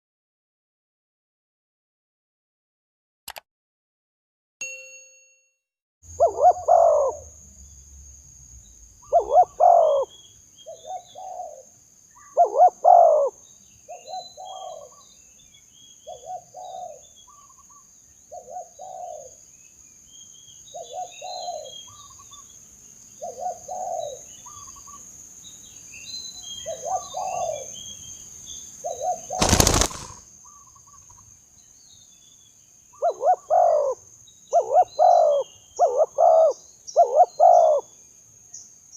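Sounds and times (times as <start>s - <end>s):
small birds chirping: 6.1s - 38.9s
dove cooing: 6.2s - 7.3s, 9.0s - 10.1s, 10.7s - 11.7s, 12.3s - 13.4s, 14.0s - 14.9s, 16.1s - 17.0s, 18.4s - 19.3s, 20.8s - 21.7s, 23.2s - 24.6s, 26.6s - 27.7s, 33.0s - 34.0s, 34.6s - 37.8s.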